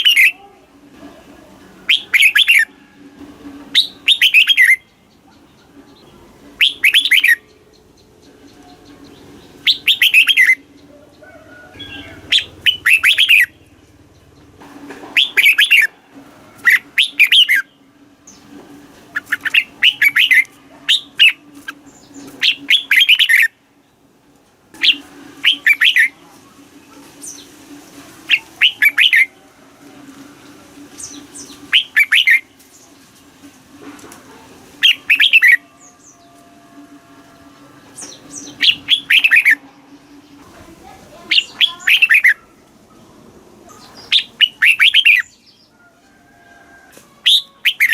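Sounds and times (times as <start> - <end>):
bird warbling song: 0.0 - 0.4, 1.9 - 2.7, 3.7 - 14.6, 15.2 - 15.9, 16.6 - 18.5, 19.1 - 23.6, 24.8 - 26.2, 28.3 - 29.4, 30.9 - 33.1, 34.8 - 36.4, 38.0 - 40.5, 41.1 - 42.5, 43.7 - 45.8, 47.2 - 47.9.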